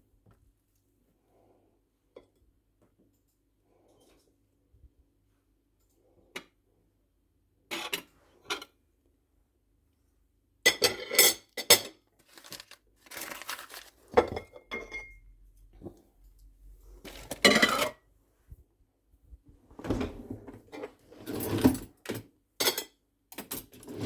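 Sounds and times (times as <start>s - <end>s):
dishes and cutlery clinking: 14.2s - 15.2s.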